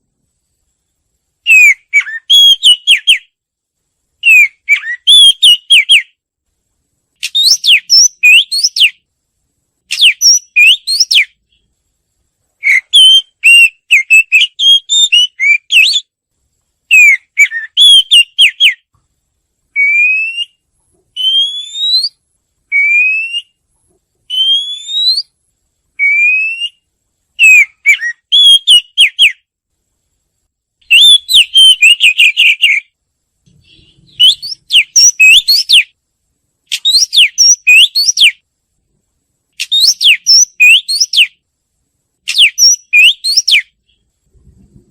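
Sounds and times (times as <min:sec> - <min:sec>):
bird singing whistled notes: 0:01.4 - 0:03.4, 0:04.2 - 0:06.2, 0:07.2 - 0:09.0, 0:09.9 - 0:11.6, 0:12.6 - 0:16.1, 0:16.9 - 0:18.9, 0:19.8 - 0:20.6, 0:21.2 - 0:23.6, 0:24.3 - 0:25.4, 0:26.0 - 0:29.5, 0:30.9 - 0:36.0, 0:36.7 - 0:38.4, 0:39.6 - 0:41.4, 0:42.3 - 0:44.1.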